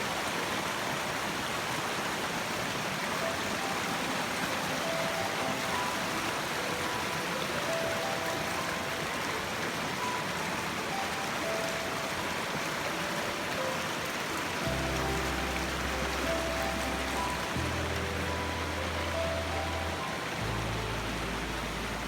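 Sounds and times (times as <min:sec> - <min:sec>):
stream water rushing: 0:00.0 - 0:22.0
faint high notes: 0:14.6 - 0:22.0.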